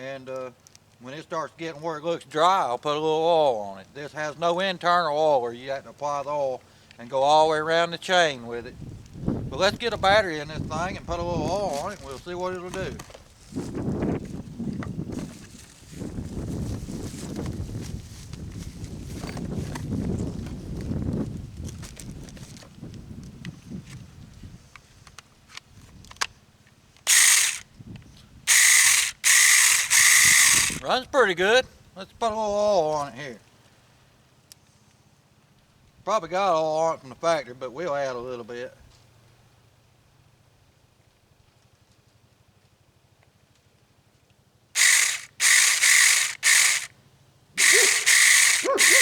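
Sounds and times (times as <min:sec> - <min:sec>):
battery chainsaw whirring: 0:09.6 - 0:20.8, 0:27.0 - 0:31.1, 0:44.8 - 0:47.0, 0:47.6 - 0:49.0
mini chainsaw chain whirring: 0:11.5 - 0:13.2, 0:27.0 - 0:27.7, 0:28.5 - 0:31.0, 0:44.8 - 0:47.0, 0:47.6 - 0:49.0.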